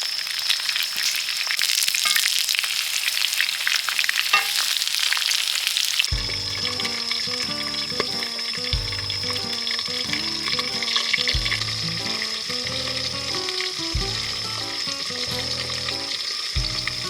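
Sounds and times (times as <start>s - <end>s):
food sizzling in hot oil: 0.0s - 17.0s
background music: 6.1s - 17.0s.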